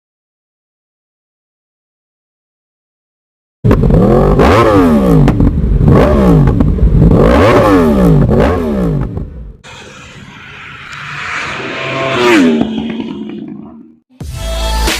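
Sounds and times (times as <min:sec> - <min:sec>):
sport motorcycle engine revving: 0:03.7 - 0:10.3, 0:11.4 - 0:14.0.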